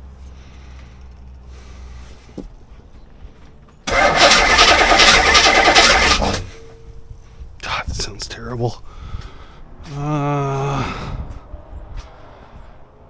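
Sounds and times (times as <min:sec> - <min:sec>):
car engine cranking by starter: 0:03.6 - 0:08.1.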